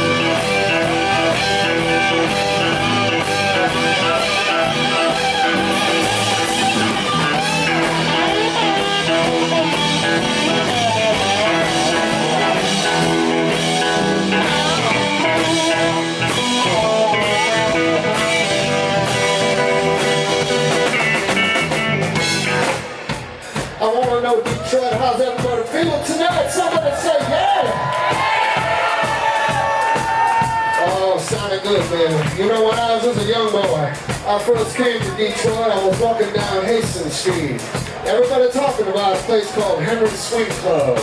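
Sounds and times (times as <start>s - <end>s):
electric guitar: 0.0s - 23.8s
blues-rock band playing: 0.0s - 41.0s.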